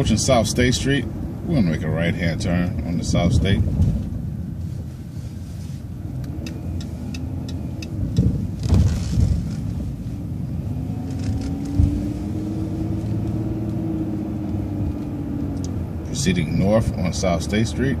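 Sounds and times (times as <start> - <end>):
bus engine rumble: 0.0 - 18.0
turn signal ticking: 6.0 - 8.7, 10.9 - 16.1.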